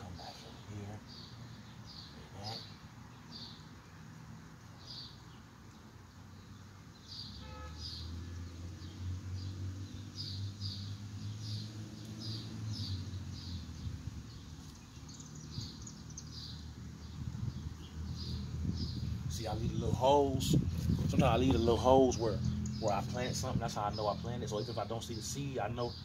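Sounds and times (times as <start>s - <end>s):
bird chirping: 0.0s - 26.0s.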